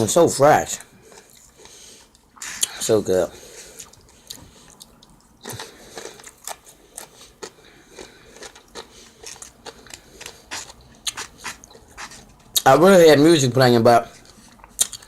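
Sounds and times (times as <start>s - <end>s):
person chewing crunchy food: 1.0s - 2.8s, 3.6s - 12.7s, 14.2s - 15.0s.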